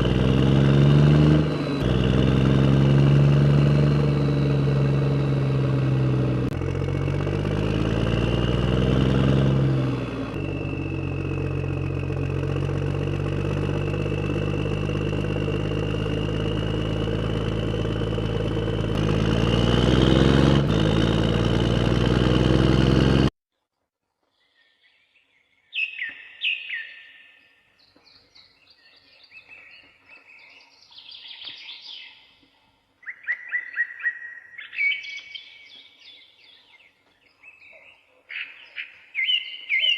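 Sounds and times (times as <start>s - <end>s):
birds chirping: 0.0s - 21.1s, 24.4s - 39.9s
engine running: 0.0s - 23.3s.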